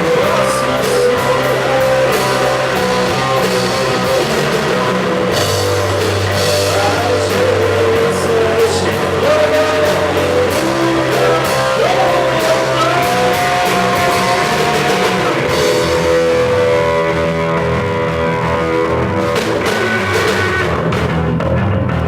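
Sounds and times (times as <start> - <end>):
sliding melody line: 0.0 - 20.8
bass guitar: 0.0 - 22.0
drum kit with cymbal hits: 0.0 - 22.0
electric guitar: 0.0 - 22.0.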